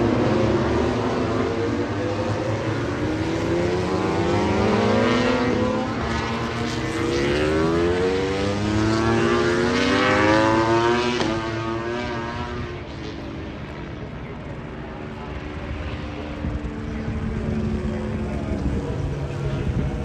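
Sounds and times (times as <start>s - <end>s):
motorcycle engines accelerating: 0.0s - 20.0s.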